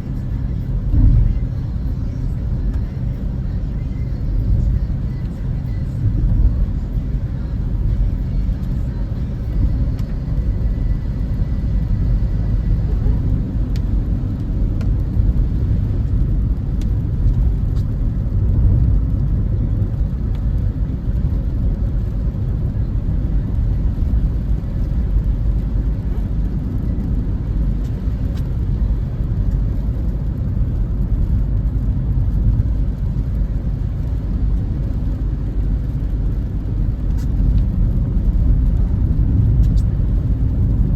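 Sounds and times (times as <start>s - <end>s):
car driving inside cabin: 0.0s - 40.9s.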